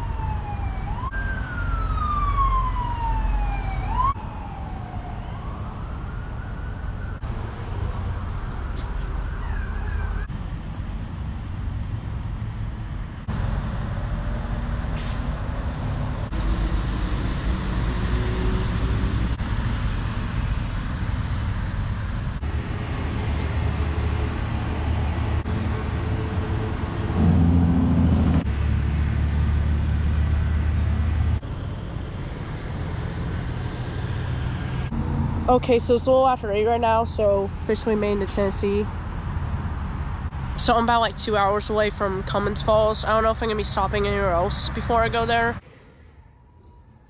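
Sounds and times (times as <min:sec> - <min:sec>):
vehicle road and engine noise: 0:00.0 - 0:47.0.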